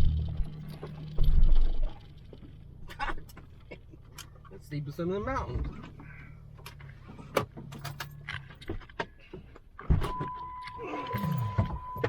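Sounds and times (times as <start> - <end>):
engine running low and slow: 0.0 - 9.7
loose gear rattling in cab: 0.1 - 12.0.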